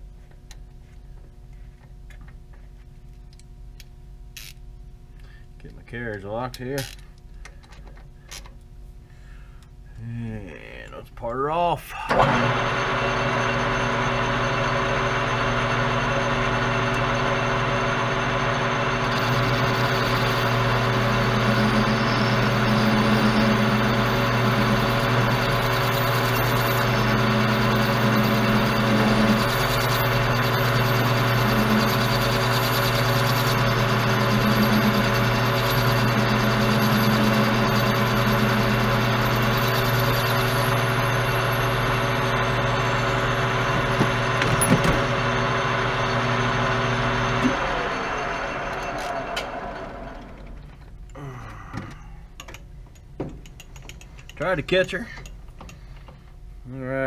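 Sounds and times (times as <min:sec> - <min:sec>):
lathe motor hum: 0:12.1 - 0:50.6
tool cutting metal bar: 0:19.1 - 0:41.4.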